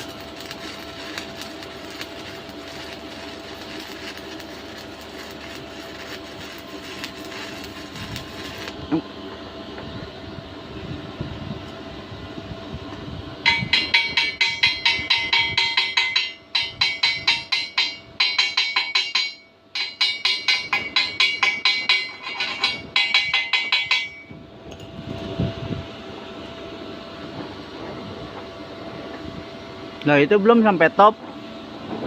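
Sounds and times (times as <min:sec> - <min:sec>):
hammer tapping steel pipe: 0:13.5 - 0:24.3.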